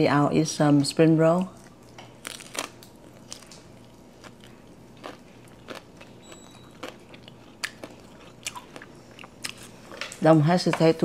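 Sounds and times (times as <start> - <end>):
person chewing crunchy food: 1.5 - 10.0.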